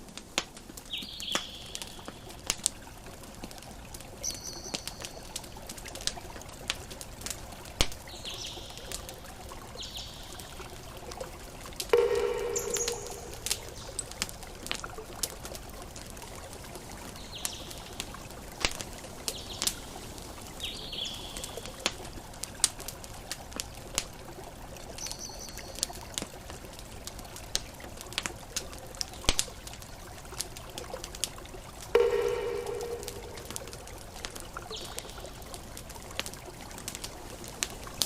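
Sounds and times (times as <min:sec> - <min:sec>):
campfire crackling and popping: 0:00.0 - 0:38.0
water flowing: 0:00.0 - 0:38.0
high bird chirps: 0:12.0 - 0:14.1, 0:32.0 - 0:33.8.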